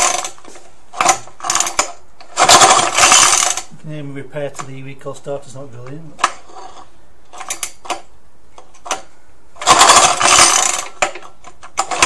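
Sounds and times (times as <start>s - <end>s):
engine cranking rasping whirr: 0.0s - 3.7s, 9.0s - 12.0s
starter mechanism clicks: 7.3s - 12.0s.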